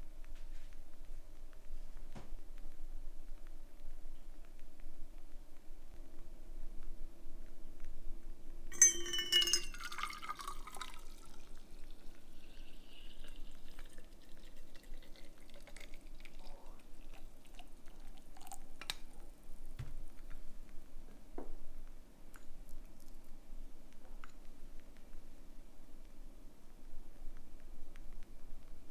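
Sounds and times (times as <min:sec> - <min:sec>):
cup and kettle clinking: 0:08.7 - 0:11.4
liquid pouring into a cup: 0:08.8 - 0:19.2.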